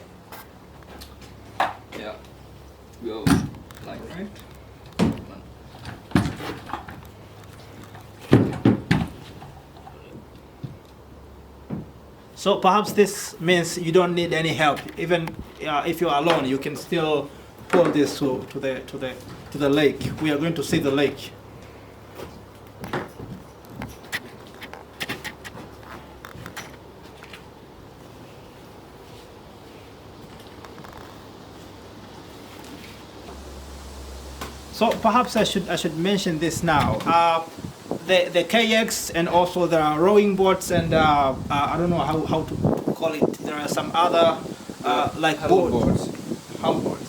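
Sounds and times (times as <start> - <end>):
steady low hum: 31.1 - 46.8.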